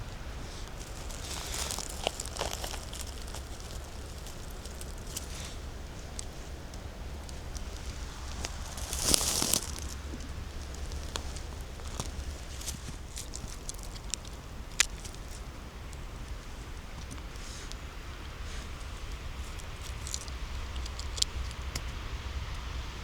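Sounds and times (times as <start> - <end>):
leaves rustling: 0.0 - 22.5
footsteps on dry leaves: 0.2 - 20.6
twig snapping: 0.7 - 16.4, 19.1 - 22.0.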